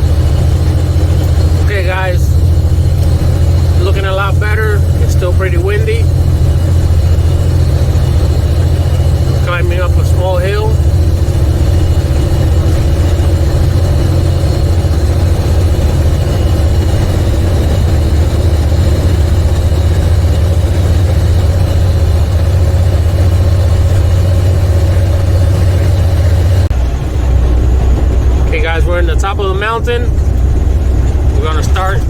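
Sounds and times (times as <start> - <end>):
truck diesel engine drone: 0.0 - 32.0.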